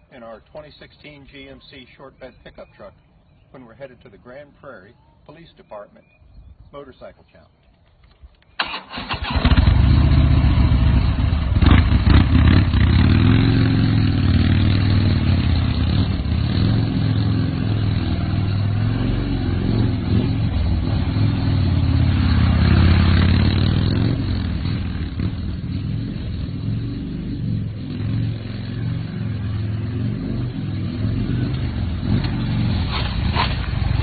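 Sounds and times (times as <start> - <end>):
motorcycle engine revving: 8.6 - 34.0.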